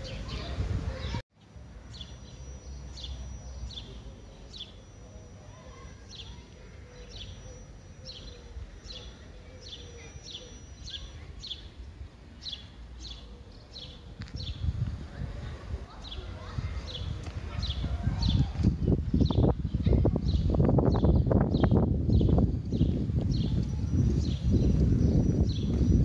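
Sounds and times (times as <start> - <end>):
small bird chirping: 0.0 - 14.8
faint high whine: 1.4 - 16.5.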